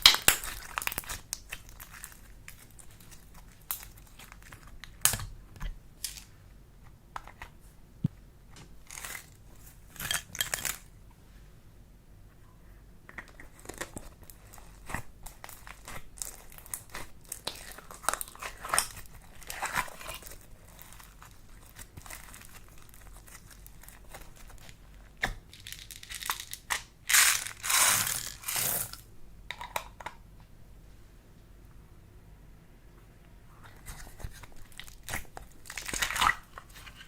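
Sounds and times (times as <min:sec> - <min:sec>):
slime crackling and popping: 0:00.0 - 0:05.3, 0:13.6 - 0:29.0, 0:34.4 - 0:37.0.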